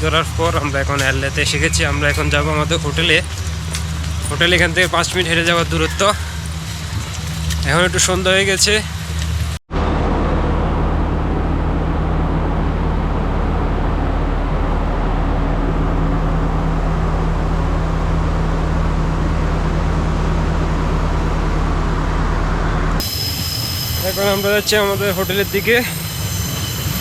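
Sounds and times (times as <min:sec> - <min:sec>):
diesel train engine idling: 0:00.0 - 0:27.0.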